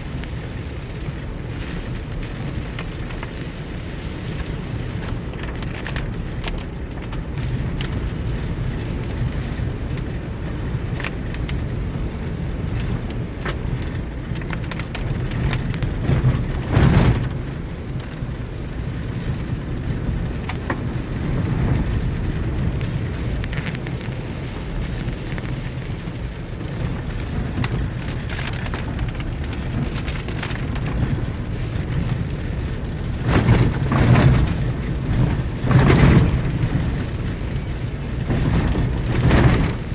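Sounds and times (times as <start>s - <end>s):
rain on a moving vehicle: 0.0s - 39.9s
raindrop clicks: 0.0s - 39.9s
road and engine rumble: 0.0s - 39.9s.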